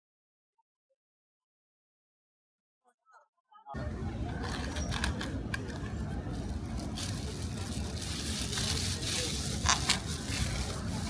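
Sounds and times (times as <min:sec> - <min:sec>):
low traffic rumble: 0:03.8 - 0:11.0.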